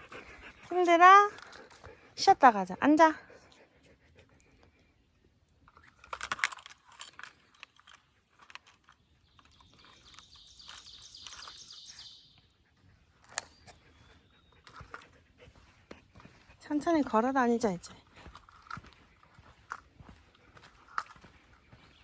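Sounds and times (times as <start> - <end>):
light jingling and clicking: 5.7 - 11.8.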